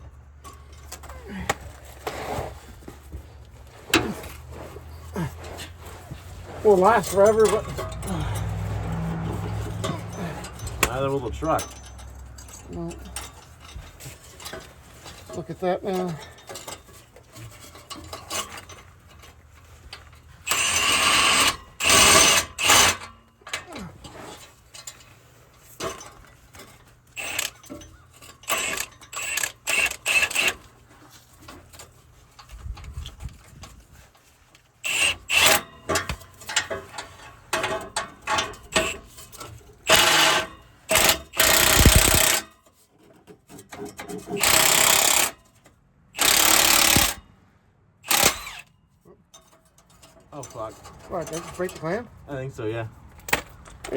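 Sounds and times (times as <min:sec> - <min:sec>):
power tool rattling bursts: 0:20.4 - 0:23.1, 0:27.1 - 0:30.6, 0:34.8 - 0:35.7, 0:38.2 - 0:39.1, 0:39.8 - 0:42.5, 0:44.3 - 0:45.4, 0:46.2 - 0:47.2, 0:48.0 - 0:48.7
clicks and knocks of metal handled: 0:35.3 - 0:44.4, 0:49.2 - 0:51.9.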